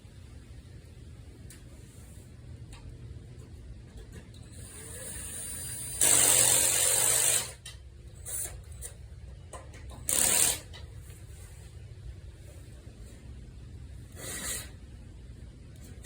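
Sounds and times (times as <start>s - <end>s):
cordless drill driving bolts: 4.5s - 7.6s, 10.0s - 10.8s.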